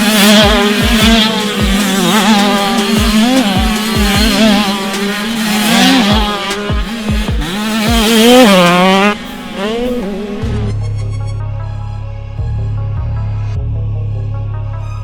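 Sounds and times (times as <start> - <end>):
dirt bikes revving: 0.0 - 10.7
music with thumping bass beat: 0.0 - 15.0.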